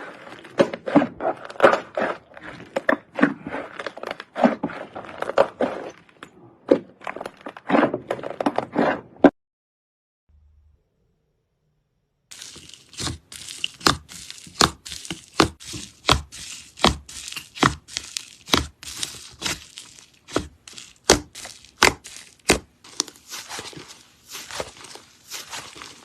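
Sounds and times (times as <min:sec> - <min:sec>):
slime popping and crackling: 0:12.3 - 0:26.0.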